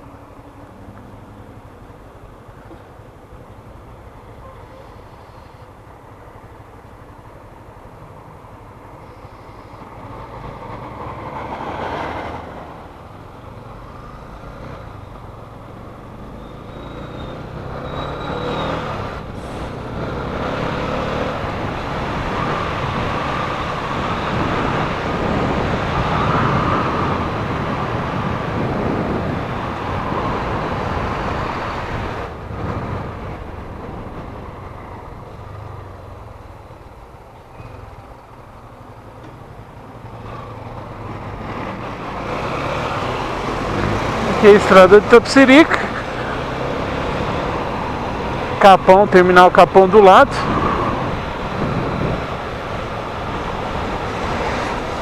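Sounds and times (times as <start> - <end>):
road traffic noise: 0.0 - 55.0
vehicle passing: 13.6 - 36.4, 40.0 - 55.0.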